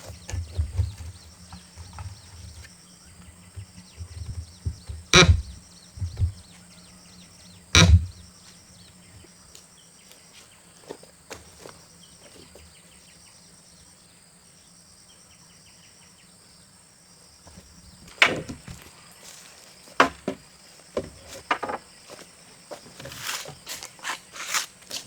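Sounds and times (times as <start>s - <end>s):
insects droning: 0.0s - 25.0s
sharp knocks on timber: 3.5s - 6.5s, 7.8s - 8.2s, 18.1s - 18.9s, 20.0s - 20.4s.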